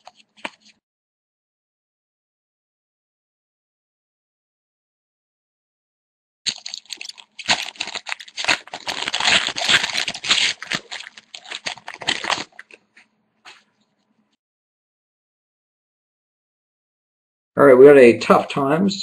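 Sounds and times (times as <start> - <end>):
wrapper tearing and crinkling: 0.0 - 0.8, 6.5 - 12.8.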